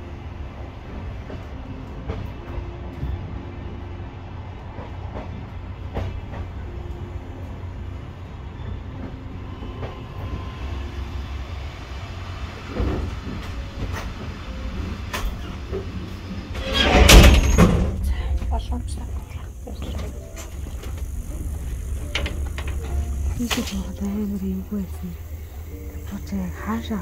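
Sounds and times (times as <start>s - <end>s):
passenger train rumbling: 0.0s - 27.0s
wheels knocking on track: 17.2s - 25.0s.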